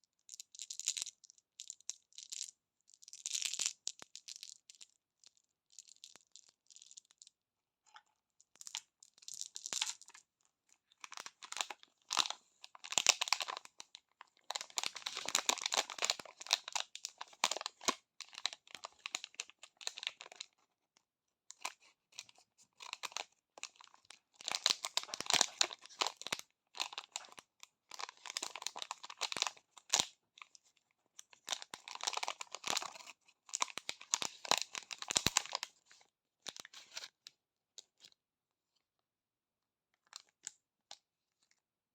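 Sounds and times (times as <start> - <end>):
plastic wrappers crinkling and tearing: 11.0 - 20.4, 21.6 - 30.1, 31.3 - 35.7.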